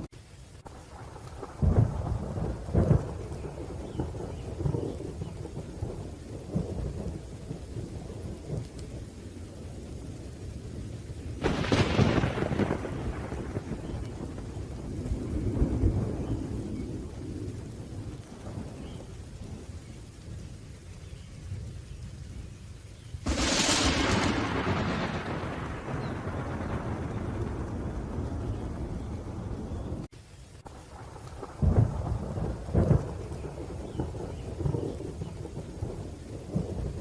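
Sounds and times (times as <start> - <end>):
rolling thunder: 0.0 - 22.4, 23.2 - 30.1, 30.7 - 37.0
steady rain: 0.0 - 37.0
sharp thunderclap: 1.0 - 8.8, 11.4 - 19.6, 23.2 - 30.1, 30.9 - 37.0.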